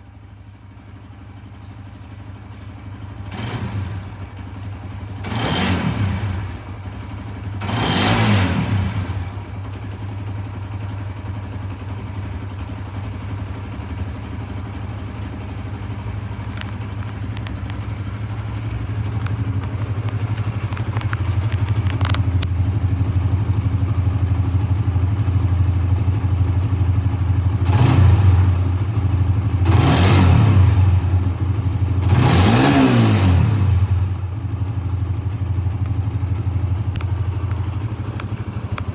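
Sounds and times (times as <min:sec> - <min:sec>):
motorcycle engine idling: 0:00.0 - 0:38.9
engine revving: 0:03.3 - 0:04.2, 0:05.2 - 0:06.6, 0:07.6 - 0:09.4, 0:27.5 - 0:34.2.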